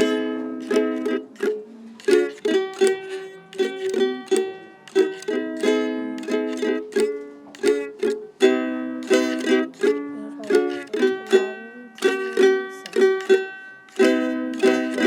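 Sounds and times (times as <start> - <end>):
ukulele strumming chords: 0.0 - 15.0.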